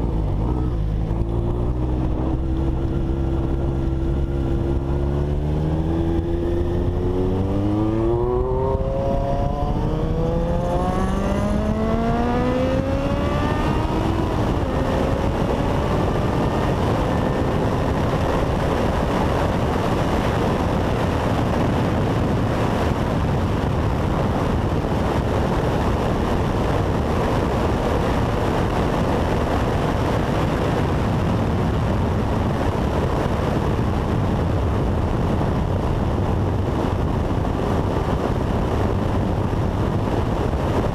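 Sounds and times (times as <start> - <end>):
motorcycle accelerating hard: 0.0 - 40.9
rushing wind noise: 0.0 - 40.9.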